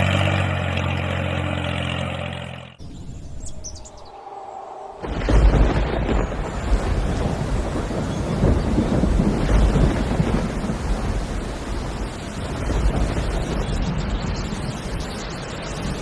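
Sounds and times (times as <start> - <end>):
deep rumbling thunder: 4.9 - 16.0
heavy rain: 5.0 - 16.0.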